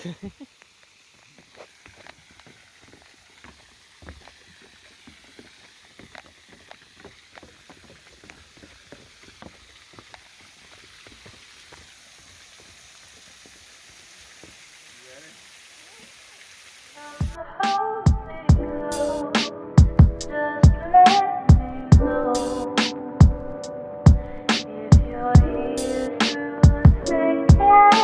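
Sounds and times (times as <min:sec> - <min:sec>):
waterfall rushing: 0:00.0 - 0:17.4.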